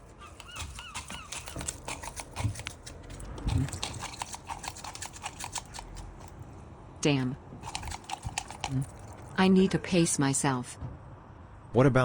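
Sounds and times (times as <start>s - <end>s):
seagull squeaks: 0.0s - 2.2s
beak snapping and pecking: 0.0s - 6.5s, 7.6s - 9.4s.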